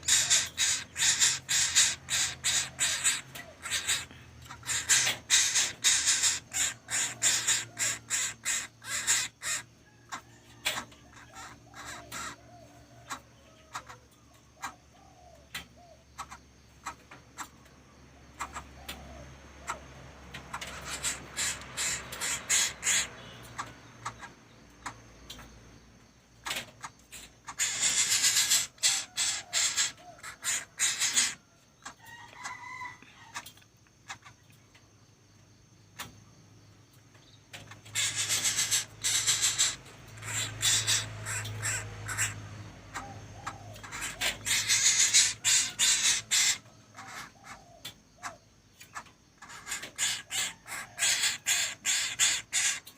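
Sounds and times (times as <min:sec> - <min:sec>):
bird chick clicking call: 0:00.0 - 0:12.4
bird chick harsh calls: 0:00.0 - 0:14.0, 0:20.4 - 0:25.1, 0:26.4 - 0:33.5, 0:37.5 - 0:52.9.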